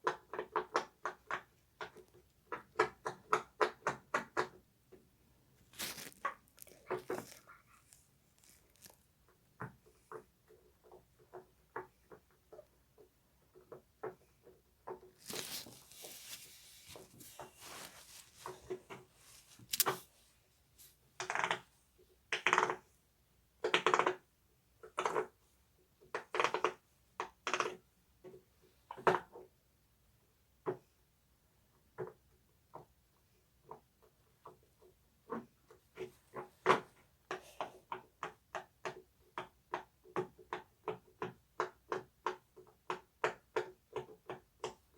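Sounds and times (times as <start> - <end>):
rustling: 5.6 - 9.1, 15.0 - 21.6.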